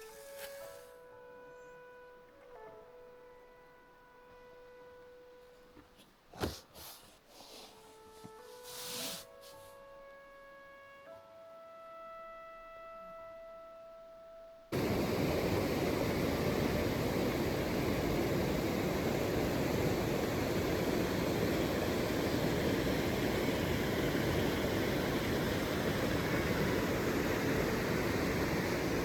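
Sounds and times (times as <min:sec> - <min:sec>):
soft background music: 0:00.0 - 0:06.1, 0:07.2 - 0:14.7
steady rushing noise: 0:14.7 - 0:29.0.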